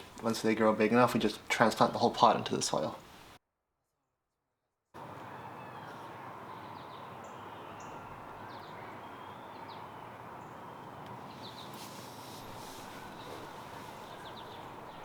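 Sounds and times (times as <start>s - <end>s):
birds chirping: 5.0s - 15.0s
outdoor background hum: 5.0s - 15.0s.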